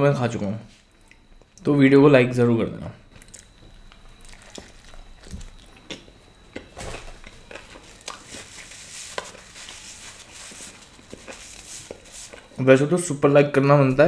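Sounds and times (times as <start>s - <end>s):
chewing pizza: 3.1s - 12.6s
paper napkin rustling: 6.8s - 12.6s.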